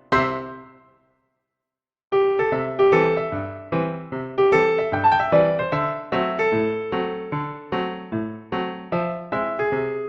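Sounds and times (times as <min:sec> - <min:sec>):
piano chord: 0:02.2 - 0:10.0.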